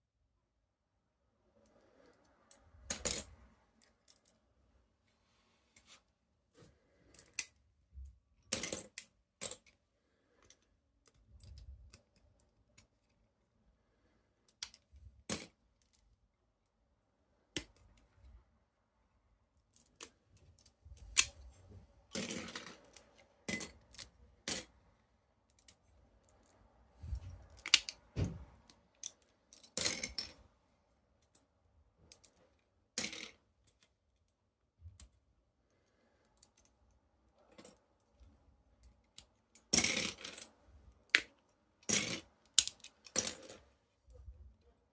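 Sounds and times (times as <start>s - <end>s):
plastic bricks clicking and rattling: 41.1s - 43.6s.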